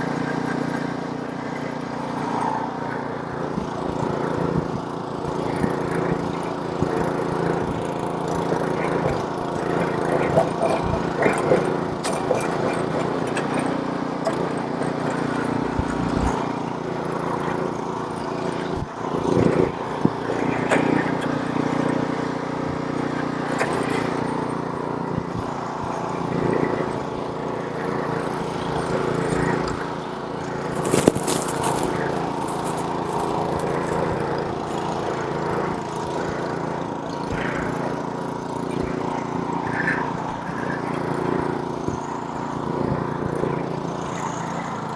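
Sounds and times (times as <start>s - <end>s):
snowblower engine running: 0.0s - 44.9s.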